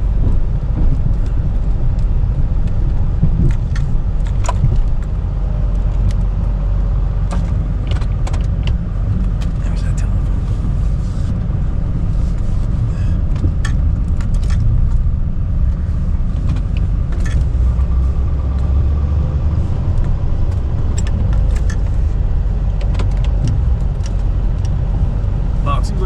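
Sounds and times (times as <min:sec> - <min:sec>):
pickup truck engine rumbling: 0:00.0 - 0:26.0
light clicks and rattles: 0:13.3 - 0:18.7, 0:19.5 - 0:26.0.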